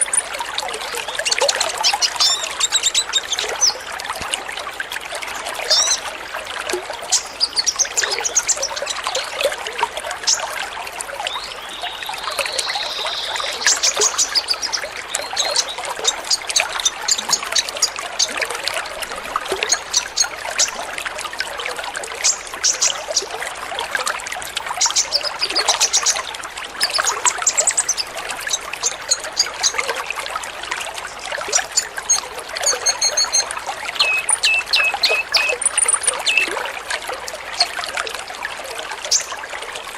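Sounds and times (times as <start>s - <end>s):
trickle of running water: 0.0s - 39.9s
sunbirds chirping and twittering: 0.9s - 3.9s, 7.0s - 9.4s, 11.2s - 18.5s, 24.8s - 29.8s, 31.1s - 36.5s.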